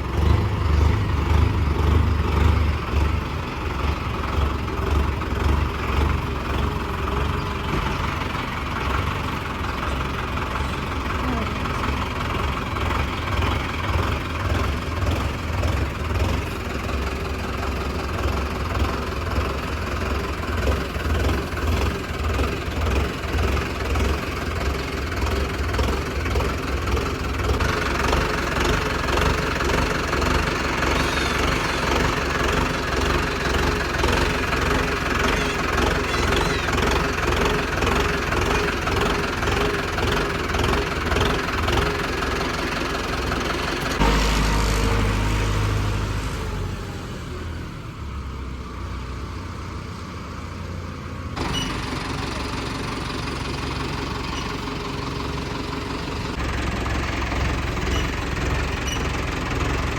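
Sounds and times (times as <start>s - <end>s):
tractor diesel engine throbbing: 0.0s - 59.9s
higher mechanical noise: 6.9s - 47.5s.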